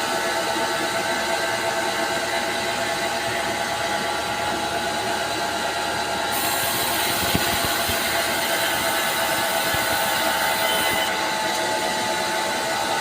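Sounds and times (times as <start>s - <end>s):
power saw cutting through log: 6.0s - 13.0s.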